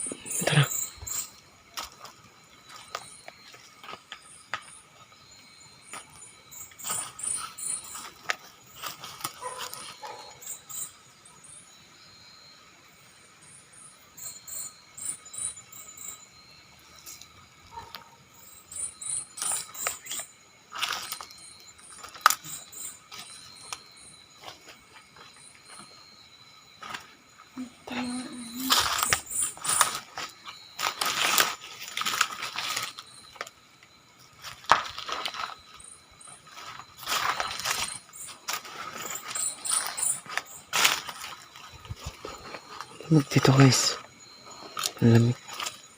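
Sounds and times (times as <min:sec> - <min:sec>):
insects chirping: 0:00.0 - 0:45.9
steady insect whine: 0:00.0 - 0:45.9
footsteps crunching through dry leaves: 0:06.8 - 0:10.3, 0:28.5 - 0:33.5, 0:34.4 - 0:43.0.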